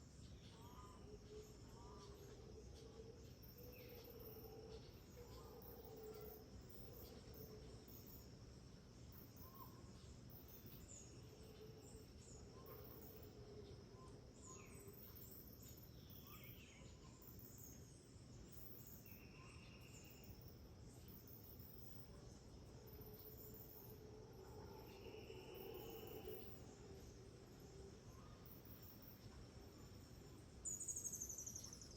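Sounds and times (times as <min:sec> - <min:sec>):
insects droning: 0:00.0 - 0:31.9
insects chirping in pulses: 0:18.3 - 0:31.9.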